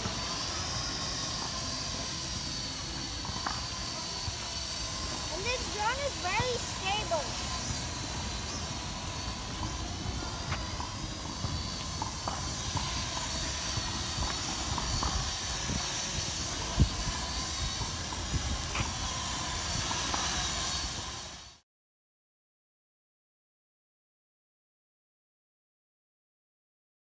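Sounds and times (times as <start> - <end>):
drone propellers whirring: 0.0 - 21.6
wind rumbling on microphone: 7.4 - 21.4.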